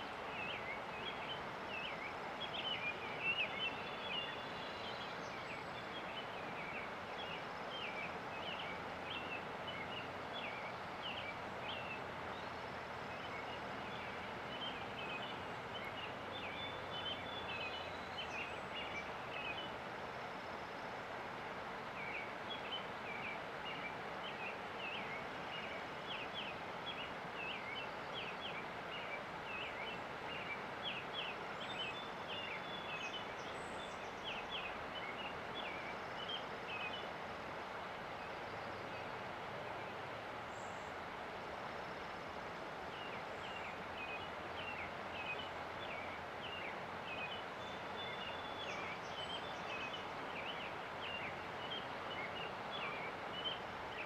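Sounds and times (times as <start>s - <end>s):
river water rushing: 0.0s - 54.0s
songbird chirping: 42.9s - 54.0s.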